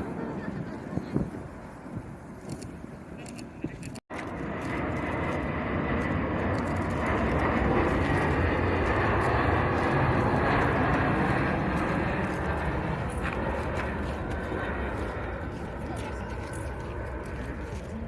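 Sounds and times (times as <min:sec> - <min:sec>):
jet airliner passing overhead: 0:00.0 - 0:18.0
thin steady engine whine: 0:04.1 - 0:18.0.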